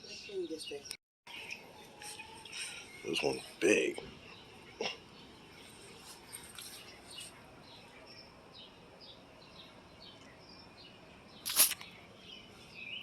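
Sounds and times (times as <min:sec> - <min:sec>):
small bird chirping: 0:11.4 - 0:13.0.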